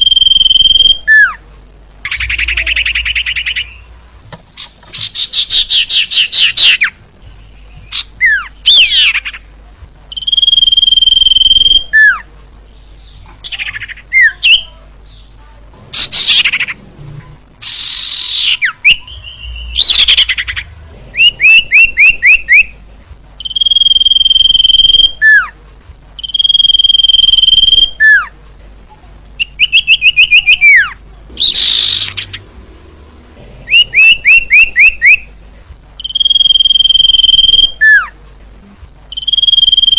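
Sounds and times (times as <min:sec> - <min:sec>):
bird singing trills and whistles: 0:00.0 - 0:01.4, 0:02.0 - 0:03.9, 0:04.6 - 0:09.4, 0:10.1 - 0:12.2, 0:13.0 - 0:14.7, 0:17.6 - 0:22.8, 0:23.4 - 0:25.5, 0:26.2 - 0:28.3, 0:29.4 - 0:32.4, 0:33.7 - 0:35.2, 0:36.0 - 0:38.1, 0:39.1 - 0:39.9.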